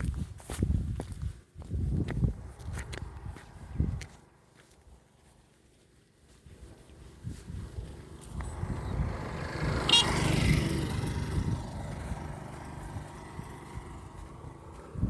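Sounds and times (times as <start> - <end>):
motor vehicle passing by: 7.1 - 15.0.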